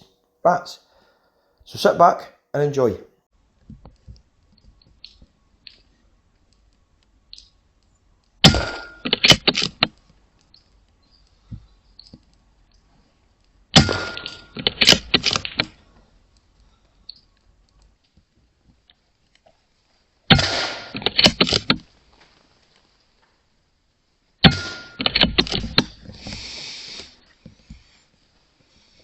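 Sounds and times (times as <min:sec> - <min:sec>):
air rifle shot crack: 0:20.3 - 0:21.5.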